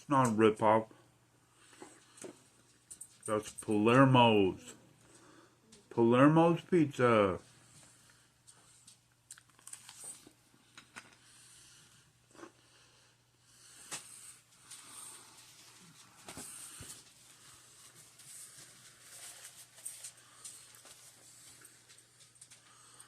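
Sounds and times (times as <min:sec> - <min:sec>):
chewing food: 0:08.1 - 0:11.3
nasal breathing: 0:10.6 - 0:18.9, 0:22.4 - 0:23.0.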